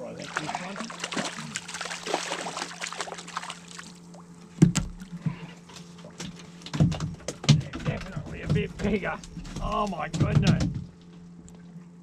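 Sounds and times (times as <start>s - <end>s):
steady low hum: 0.0s - 12.0s
water splashing and dripping: 0.2s - 5.1s
loud knock: 10.1s - 10.9s.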